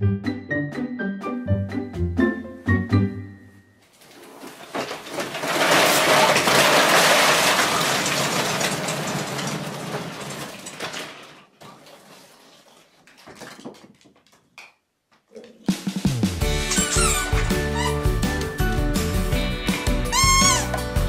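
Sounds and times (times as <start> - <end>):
plastic toys clattering: 4.0 - 14.6, 20.1 - 20.8.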